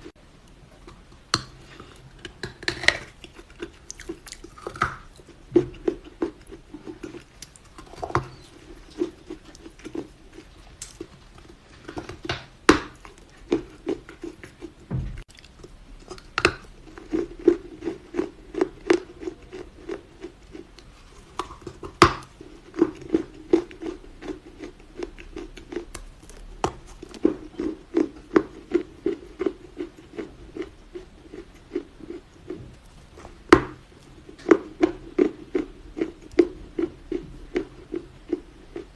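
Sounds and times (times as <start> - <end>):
crunchy earth being chewed: 1.7 - 38.9.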